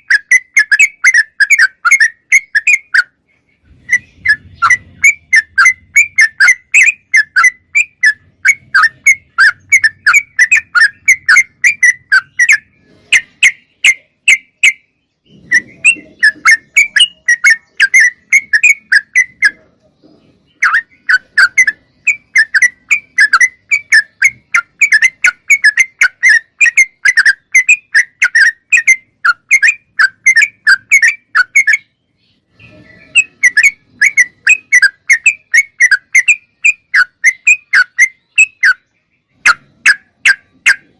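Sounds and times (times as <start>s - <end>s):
bird singing loud chirps: 0.0s - 40.9s.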